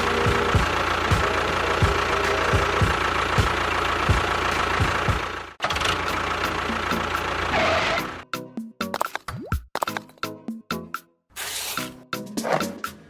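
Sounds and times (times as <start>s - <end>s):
engine running with low knocks: 0.0s - 8.2s.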